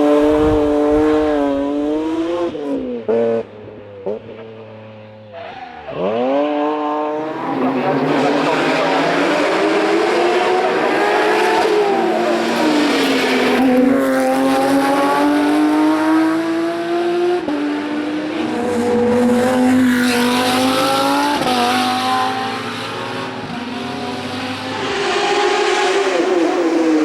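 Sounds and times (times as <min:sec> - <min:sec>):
race car engine accelerating: 0:05.9 - 0:27.0.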